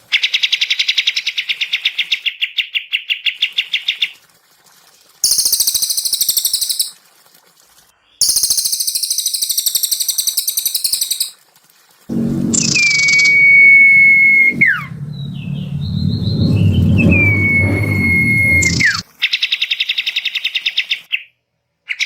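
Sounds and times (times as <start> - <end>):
songbird trills: 8.2 - 11.3.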